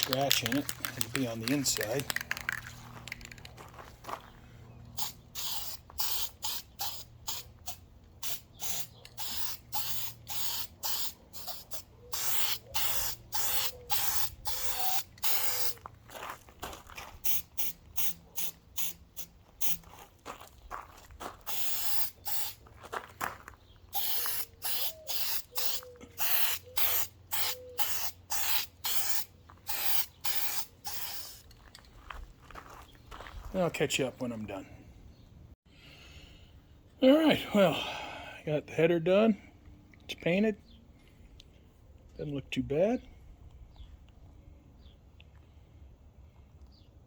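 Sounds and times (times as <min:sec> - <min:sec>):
aerosol spray can spraying: 0:05.0 - 0:15.8, 0:21.5 - 0:22.6, 0:24.0 - 0:31.4.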